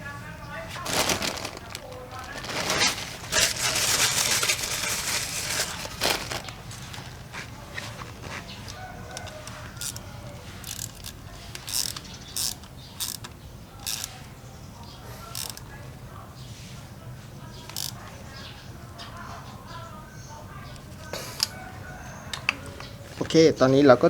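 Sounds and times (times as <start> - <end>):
metal parts and tools clinking: 2.2 - 7.3, 8.2 - 14.1.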